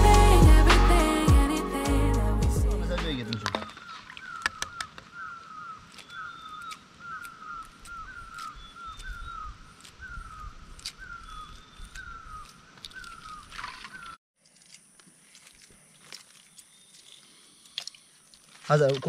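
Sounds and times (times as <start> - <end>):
bird calling: 3.2 - 14.2
eggshell cracking and peeling: 3.3 - 19.0.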